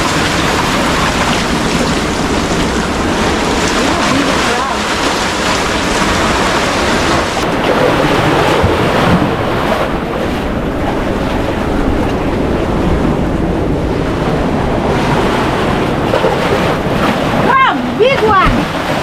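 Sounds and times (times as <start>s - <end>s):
surf breaking on rocks: 0.0s - 19.0s
wind buffeting microphone: 0.0s - 19.0s.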